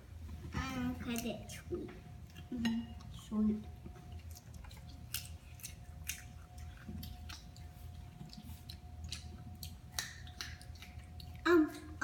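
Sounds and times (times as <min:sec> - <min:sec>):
faint steady hum: 0:00.0 - 0:12.0
children crunching carrot: 0:04.2 - 0:12.0.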